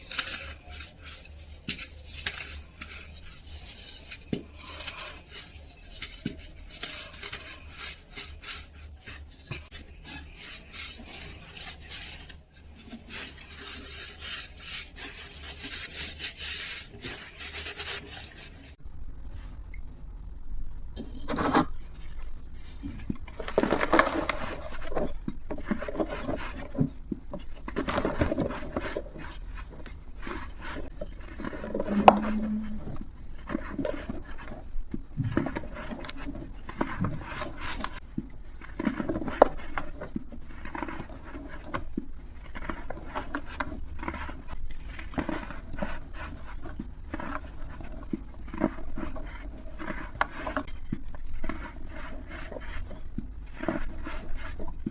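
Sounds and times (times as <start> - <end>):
dry material crumbling and crackling: 22.0 - 54.9.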